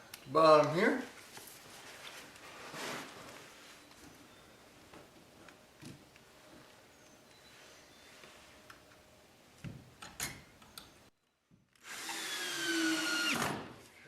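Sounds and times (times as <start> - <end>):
power drill driving screw into wood: 11.8 - 13.7.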